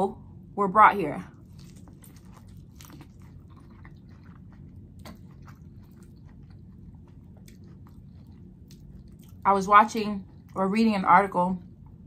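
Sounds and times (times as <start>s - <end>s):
steady low hum: 0.0s - 12.0s
chewing corn on the cob: 1.3s - 9.5s.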